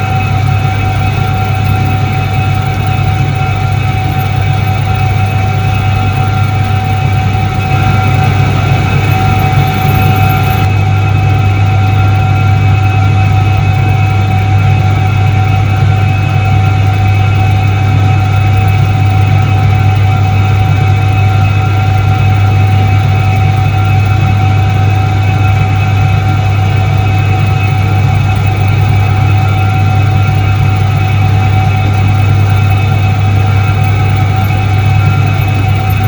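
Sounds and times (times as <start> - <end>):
high whining tones: 0.0 - 12.8, 27.2 - 36.0
washing machine motor hum: 0.0 - 13.2, 20.7 - 36.0.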